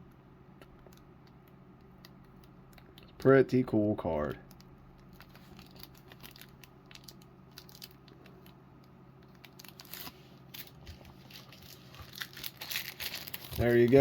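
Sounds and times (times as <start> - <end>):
low steady hum: 0.0 - 14.0
trading card packaging clicks and crinkles: 4.4 - 14.0.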